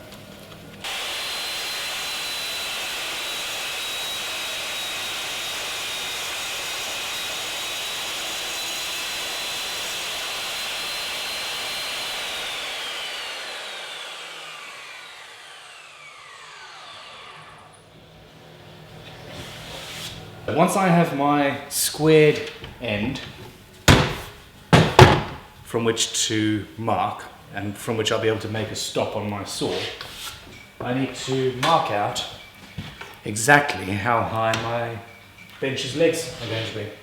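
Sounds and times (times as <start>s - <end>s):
circular saw whining: 0.8s - 20.4s.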